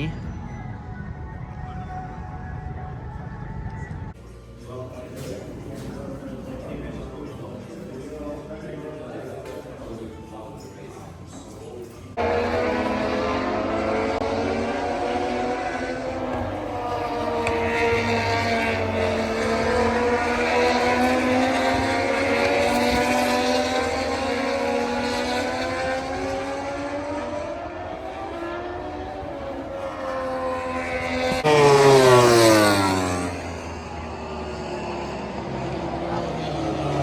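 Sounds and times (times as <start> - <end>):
racing motorcycle engines revving: 12.1 - 37.0
motorcycle passing close by: 12.2 - 37.0.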